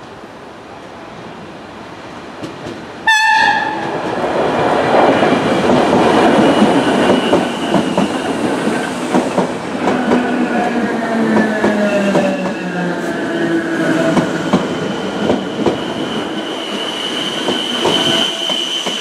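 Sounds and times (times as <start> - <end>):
train wheels clattering on rails: 2.3 - 12.9, 13.8 - 19.0
train horn blast: 3.0 - 3.9.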